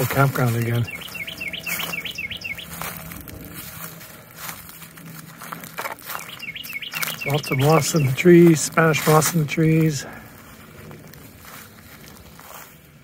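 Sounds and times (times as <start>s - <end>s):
songbird whistling: 0.8s - 3.1s, 6.1s - 8.2s.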